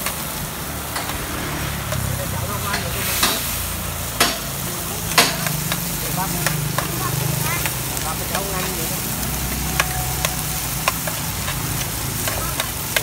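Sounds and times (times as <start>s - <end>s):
corn sizzling in metal pan: 0.0s - 13.0s
spatula clanking against pan: 4.2s - 7.0s, 9.5s - 13.0s.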